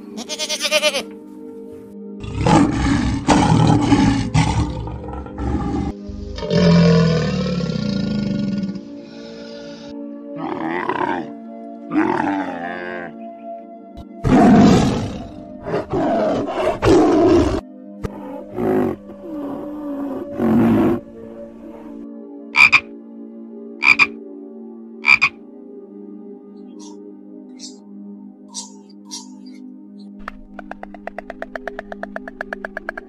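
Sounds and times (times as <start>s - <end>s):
background music: 0.0s - 33.0s
camel groaning and bellowing: 10.4s - 13.3s, 14.0s - 22.0s.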